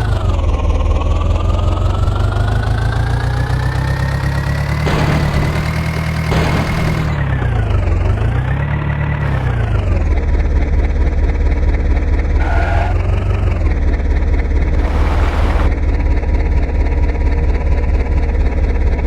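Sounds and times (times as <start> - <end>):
tractor diesel engine revving: 1.5 - 7.5, 8.8 - 10.4, 14.6 - 15.7
short hisses: 14.8 - 15.7.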